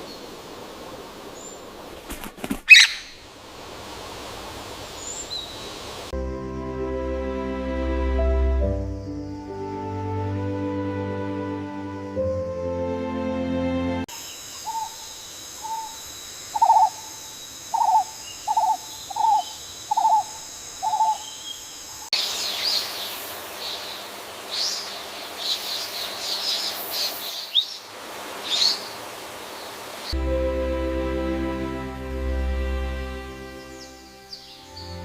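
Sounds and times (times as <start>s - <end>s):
birds chirping and whistling: 2.7s - 3.2s
owl-like hoots: 2.7s - 3.2s, 14.6s - 15.0s, 15.6s - 16.0s, 16.6s - 17.1s, 17.7s - 21.3s.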